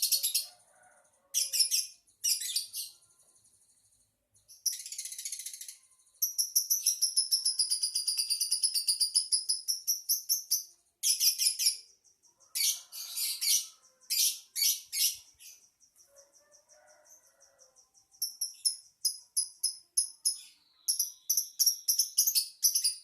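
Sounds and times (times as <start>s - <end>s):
lovebird chattering trill: 4.6s - 11.9s, 12.5s - 15.6s, 18.2s - 23.0s.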